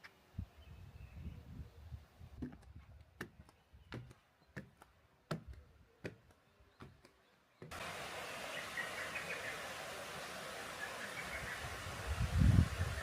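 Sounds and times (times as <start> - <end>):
outdoor noise hiss: 0.0 - 2.6, 3.2 - 13.0
footsteps walking: 2.4 - 7.8.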